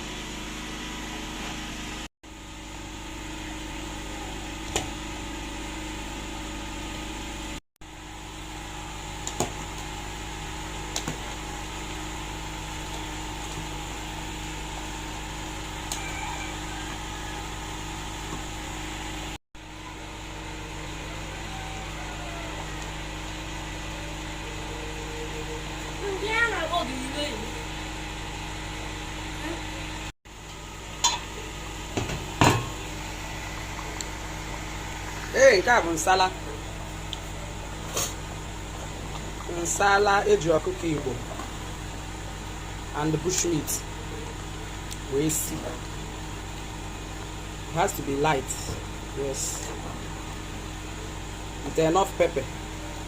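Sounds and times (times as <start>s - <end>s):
steady hum and hiss: 0.0s - 53.0s.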